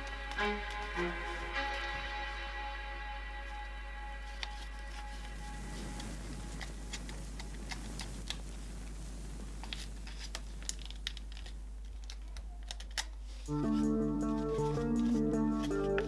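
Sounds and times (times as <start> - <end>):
music: 0.0 - 6.6, 13.4 - 16.0
low steady hum: 0.0 - 16.0.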